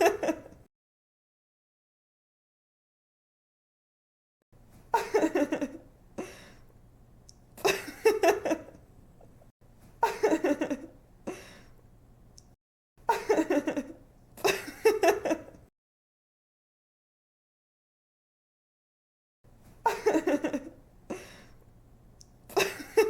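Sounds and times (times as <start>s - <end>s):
woman giggling: 0.0s - 0.6s, 4.9s - 5.9s, 10.0s - 11.5s, 13.1s - 15.6s, 19.8s - 21.3s, 22.5s - 23.0s.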